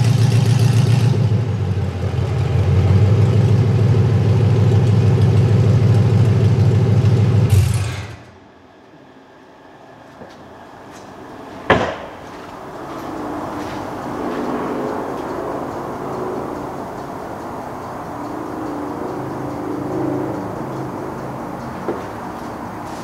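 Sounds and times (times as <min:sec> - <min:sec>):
car engine running: 0:00.0 - 0:08.4, 0:12.2 - 0:23.0
sharp knock: 0:11.7 - 0:12.2.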